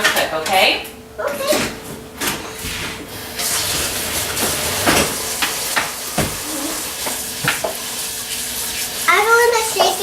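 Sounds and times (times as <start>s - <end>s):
kitchen tap running: 3.1s - 10.0s
utensil clinking against sink: 3.4s - 8.0s.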